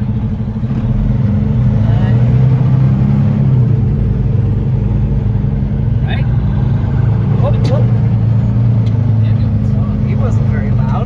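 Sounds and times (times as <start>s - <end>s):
truck diesel engine hum: 0.0s - 11.0s.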